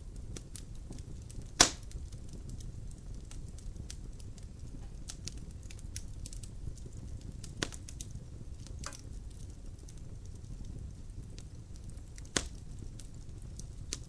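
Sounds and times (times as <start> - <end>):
wood fire rumbling and crackling: 0.0 - 14.0
sharp fire pop: 1.6 - 2.0, 7.6 - 7.8, 12.3 - 12.6.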